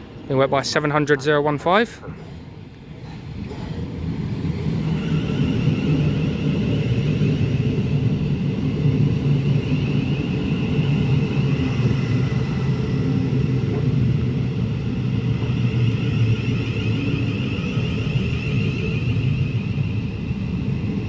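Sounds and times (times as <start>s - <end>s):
train rumble: 0.0s - 21.0s
high wavering whine: 4.6s - 21.0s.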